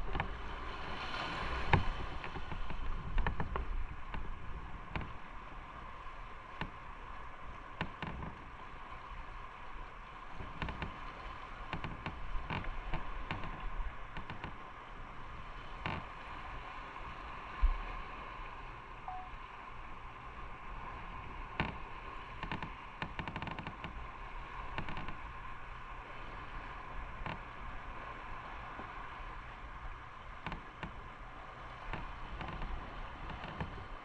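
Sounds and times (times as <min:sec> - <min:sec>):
road and wind noise: 0:00.0 - 0:14.6.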